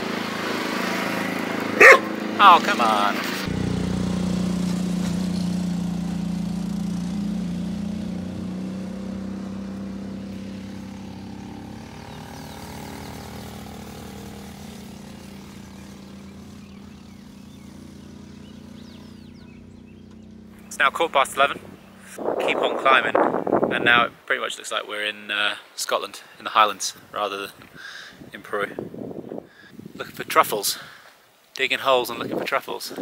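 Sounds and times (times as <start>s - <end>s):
mini-motorbike engine running: 0.0s - 8.6s, 10.8s - 20.4s.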